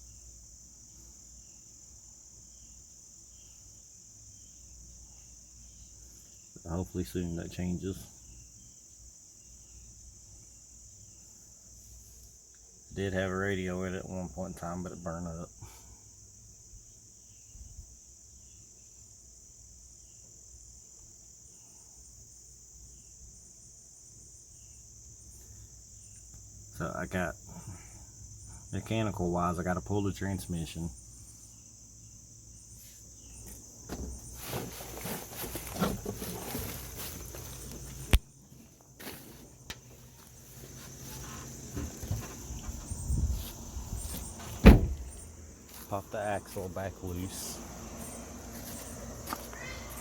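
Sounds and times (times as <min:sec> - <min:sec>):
crickets chorus buzzing: 0:00.0 - 0:50.0
faint chirps: 0:45.1 - 0:50.0.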